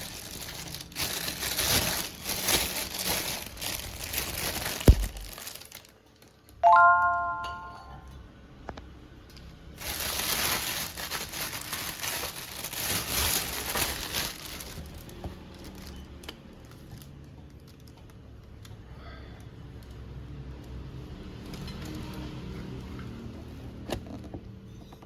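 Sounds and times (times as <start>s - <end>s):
food packaging crinkling: 0.0s - 6.6s, 9.8s - 18.2s.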